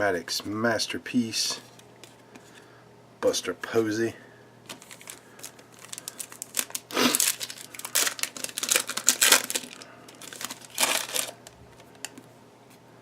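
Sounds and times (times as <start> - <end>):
wrapper crinkling: 4.7 - 12.2
cards being handled: 4.7 - 12.3.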